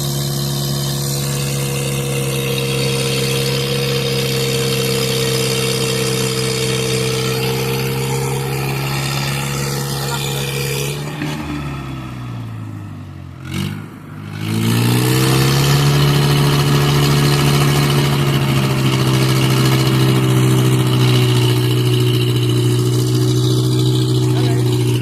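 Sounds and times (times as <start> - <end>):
tractor diesel engine revving: 0.0 - 25.0.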